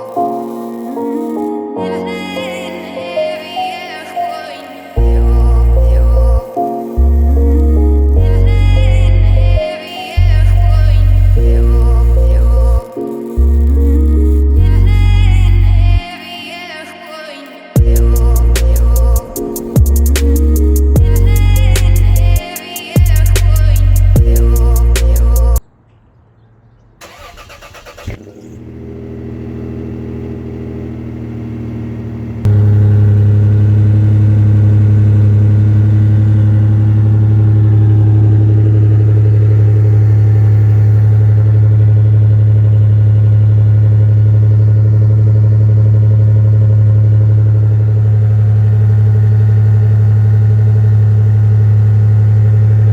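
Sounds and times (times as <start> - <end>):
car engine cranking and starting: 17.8 - 22.4, 26.7 - 52.9
deep exhaust idle: 28.2 - 52.9.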